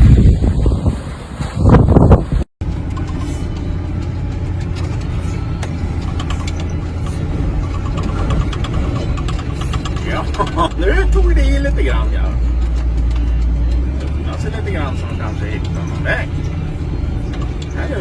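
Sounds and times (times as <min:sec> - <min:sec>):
wind gusting against microphone: 0:00.0 - 0:02.5
car engine humming: 0:02.6 - 0:18.0.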